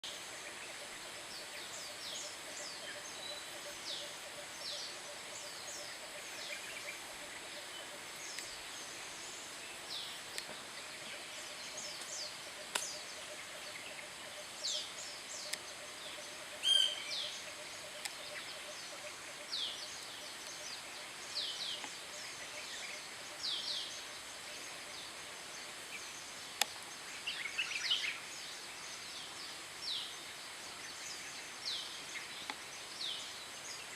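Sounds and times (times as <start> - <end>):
whistled bird calls: 16.6 - 17.3.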